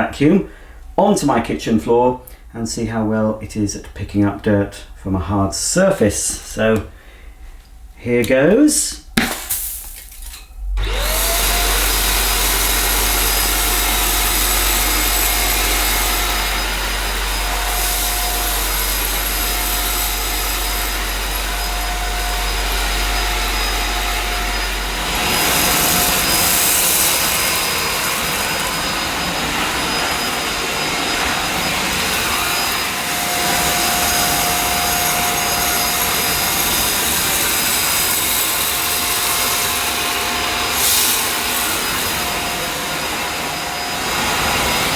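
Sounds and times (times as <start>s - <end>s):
low hum: 9.8s - 37.1s
handheld vacuum cleaner running: 10.8s - 44.9s.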